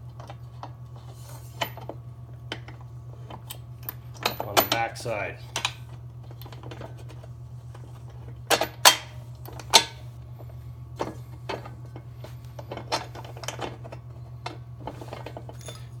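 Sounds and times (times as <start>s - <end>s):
steady low hum: 0.0s - 16.0s
metal hardware clanking: 4.2s - 5.8s, 15.1s - 16.0s.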